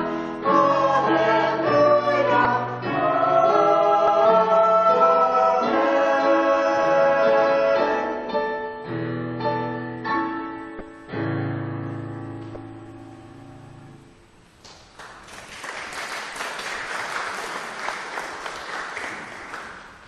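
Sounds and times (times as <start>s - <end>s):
choir singing: 0.0s - 8.3s
piano chords: 0.0s - 14.6s.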